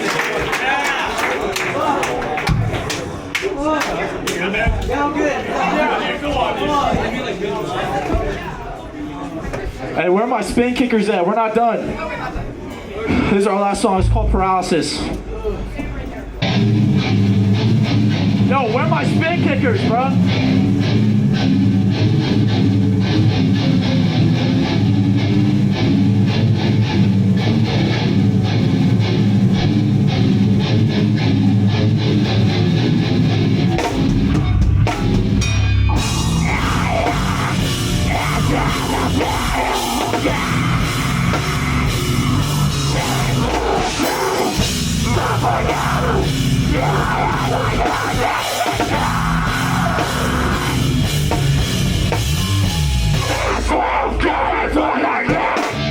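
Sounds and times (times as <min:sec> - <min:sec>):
distorted guitar: 0:13.8 - 0:15.3, 0:16.3 - 0:55.9
drum kit: 0:14.0 - 0:55.9.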